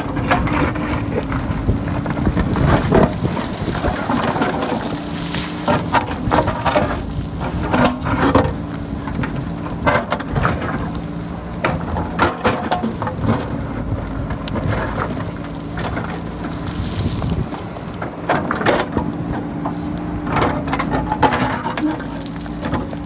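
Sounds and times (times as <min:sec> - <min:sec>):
wind on microphone: 0:00.0 - 0:10.9, 0:15.9 - 0:18.0
diesel engine running: 0:00.0 - 0:23.0
rock and soil crunching: 0:00.0 - 0:23.0.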